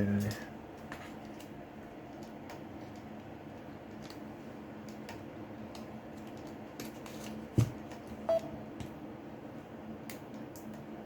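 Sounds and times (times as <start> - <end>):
steady low hum: 0.0 - 11.0
short electronic beep: 8.3 - 8.5.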